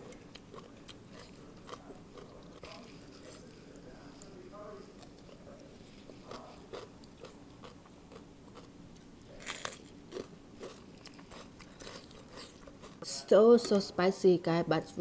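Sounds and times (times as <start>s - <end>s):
chewing with soft crunches: 0.0s - 13.8s
crisp crunch of raw vegetable: 9.3s - 13.0s.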